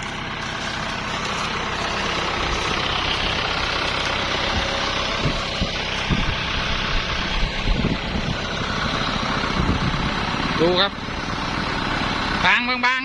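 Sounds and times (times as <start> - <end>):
tractor diesel engine running: 0.0 - 13.0
low thuds: 0.9 - 10.1.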